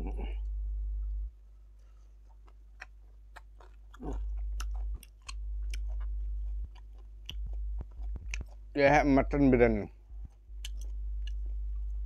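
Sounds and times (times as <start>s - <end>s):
low hum: 0.0s - 2.0s, 3.9s - 12.0s
person chewing food: 1.6s - 8.8s, 9.9s - 12.0s.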